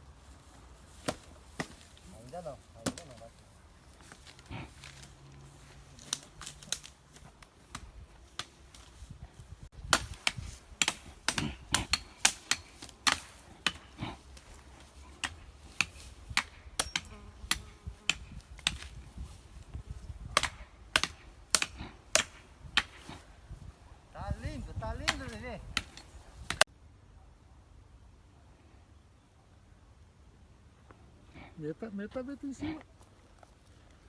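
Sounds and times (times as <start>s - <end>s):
firewood chopping knocks: 20.4s - 23.0s.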